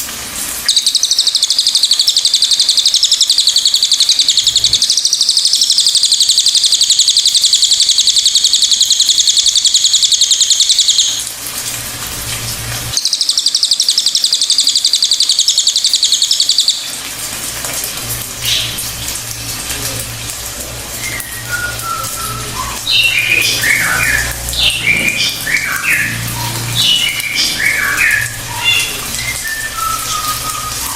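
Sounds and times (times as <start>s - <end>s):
bird high-pitched trill: 0.6s - 11.2s, 12.9s - 17.0s, 21.0s - 30.9s.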